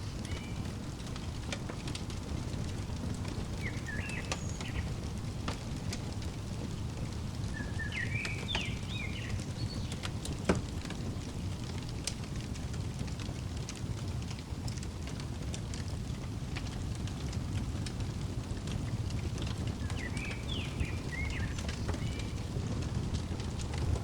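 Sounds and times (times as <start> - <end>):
fireplace crackling: 0.0 - 24.0
wood fire popping: 0.0 - 24.0
bird chirping: 3.5 - 5.0, 7.4 - 10.0, 19.7 - 22.8.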